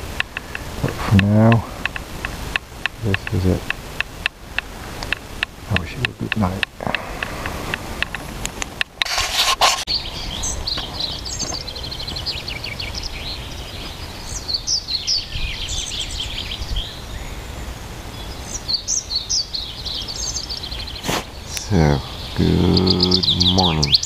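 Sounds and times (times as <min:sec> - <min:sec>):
steady low rumble: 0:00.0 - 0:09.0
songbirds singing: 0:00.0 - 0:24.0.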